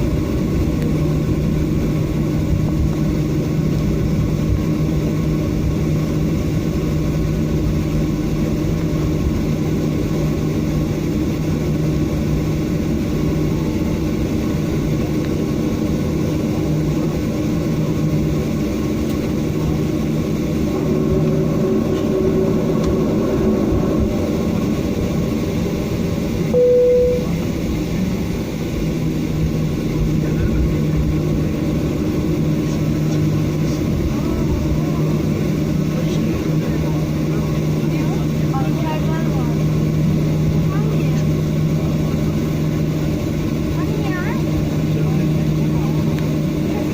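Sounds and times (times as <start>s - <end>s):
aircraft cabin drone: 0.0s - 46.9s
short single tone: 26.5s - 27.6s.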